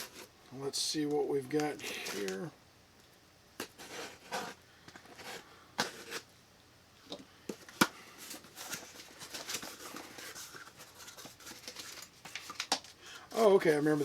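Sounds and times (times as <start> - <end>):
packaging rustling: 7.5 - 14.0.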